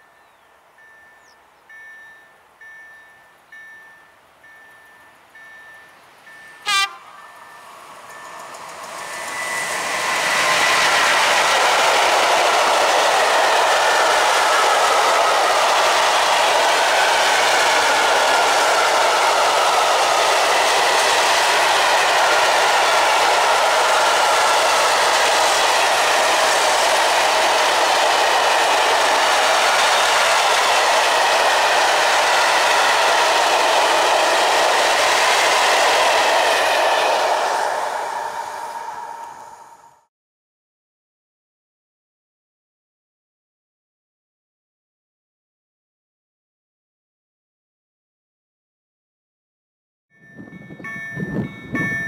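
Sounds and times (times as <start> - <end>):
steel wheels rolling on rails: 7.3 - 39.9.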